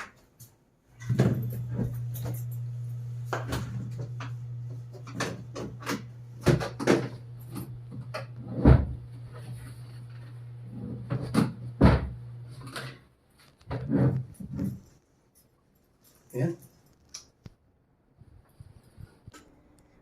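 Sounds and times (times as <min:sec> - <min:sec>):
washing machine knocking and clattering: 0:01.0 - 0:02.5, 0:03.2 - 0:09.1, 0:10.9 - 0:12.3
washing machine motor humming: 0:01.0 - 0:12.8.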